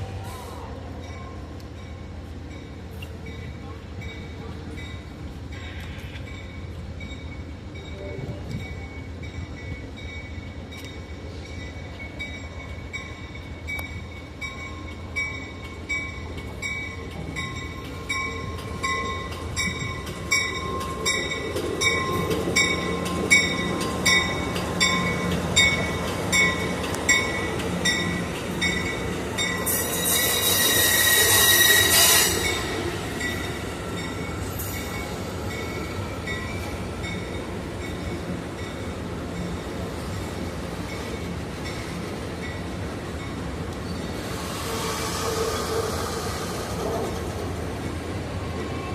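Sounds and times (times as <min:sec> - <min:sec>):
locomotive hum: 0:00.0 - 0:48.9
locomotive bell ringing: 0:06.3 - 0:39.8
wheels squealing on rail: 0:16.7 - 0:37.4, 0:43.7 - 0:47.9.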